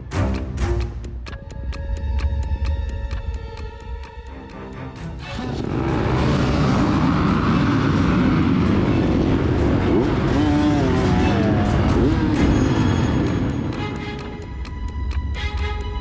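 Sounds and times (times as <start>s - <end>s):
dirtbike engines revving: 5.4s - 13.8s.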